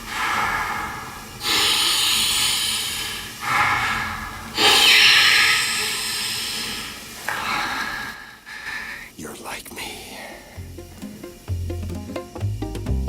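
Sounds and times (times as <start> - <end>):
man breathing hard: 0.0 - 9.2.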